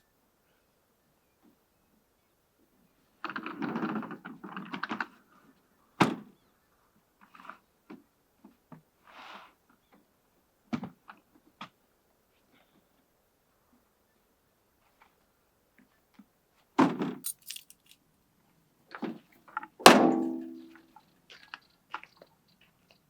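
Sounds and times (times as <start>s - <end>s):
objects clattering: 17.2s - 18.0s, 19.9s - 20.8s
rustling: 17.2s - 18.0s
sharp knock: 19.9s - 20.8s.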